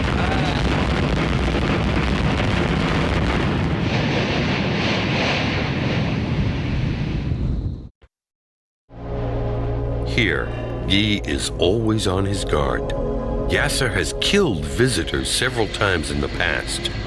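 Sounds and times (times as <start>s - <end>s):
volcano erupting rumble: 0.0s - 7.9s
wind buffeting microphone: 0.0s - 7.9s
bright hissing rush: 14.6s - 17.0s.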